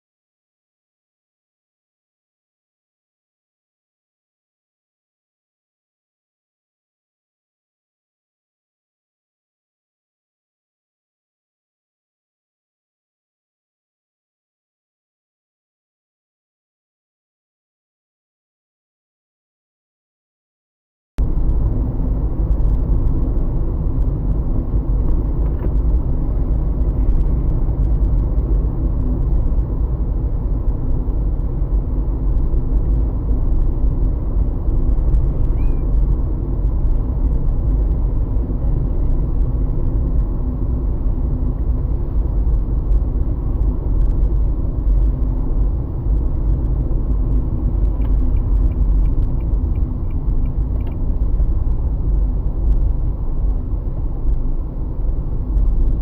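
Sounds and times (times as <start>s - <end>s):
car driving on road: 21.2s - 56.0s.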